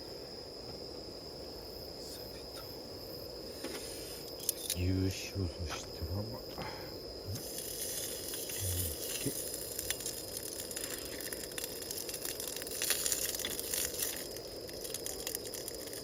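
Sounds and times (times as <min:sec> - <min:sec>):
meat sizzling on a grill: 0:07.1 - 0:16.0
wood fire crackling and popping: 0:07.3 - 0:16.0.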